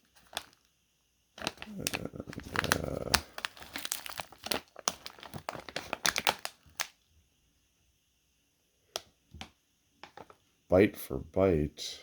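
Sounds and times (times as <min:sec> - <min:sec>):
cardboard box packaging crinkling: 0:00.0 - 0:00.7, 0:01.4 - 0:06.9.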